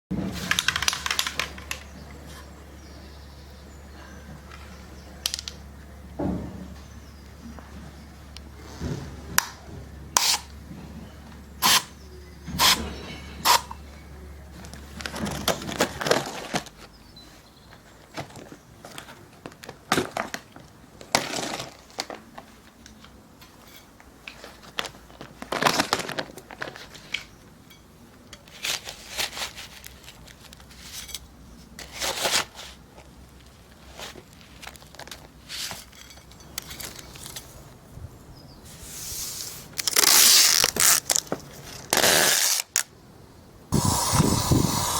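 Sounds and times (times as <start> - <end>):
hand tool scraping stone and asphalt: 10.2 - 10.5, 11.6 - 13.8.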